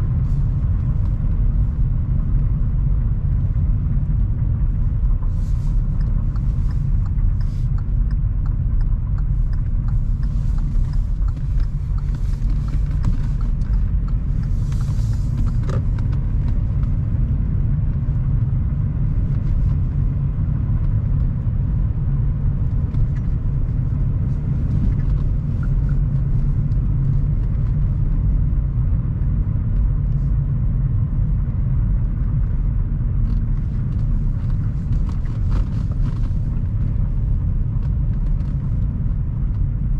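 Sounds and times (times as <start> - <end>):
car engine and road noise: 0.0 - 39.9
faint clicks and rattles: 5.1 - 17.0.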